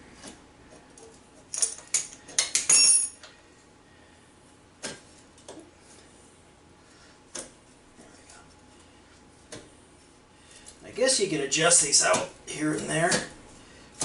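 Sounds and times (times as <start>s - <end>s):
metal tools clinking: 1.5s - 3.3s.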